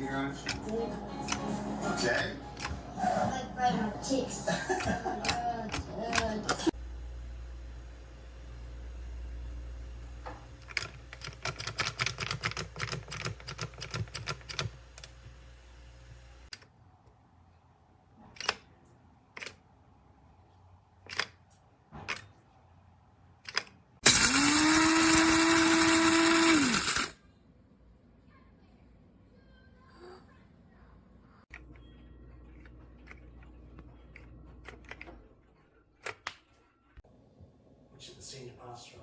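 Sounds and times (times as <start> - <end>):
rattling clicks: 0.4 - 2.9, 4.7 - 6.7, 10.6 - 15.2, 21.0 - 21.4, 23.4 - 23.8, 31.5 - 36.7
coffee grinder motor whining: 24.0 - 27.2.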